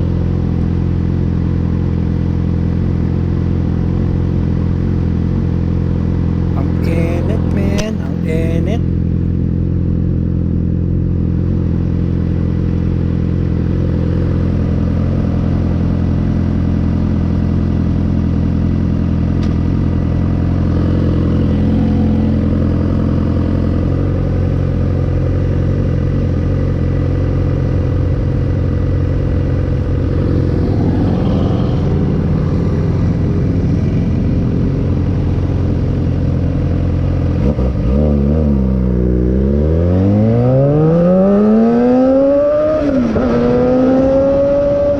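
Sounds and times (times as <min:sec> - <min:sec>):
motorcycle engine revving: 0:19.7 - 0:44.9.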